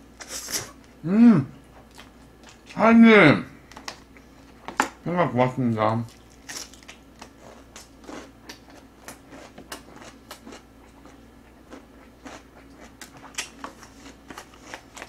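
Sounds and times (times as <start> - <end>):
chewing food: 1.7 - 2.8, 6.0 - 15.0.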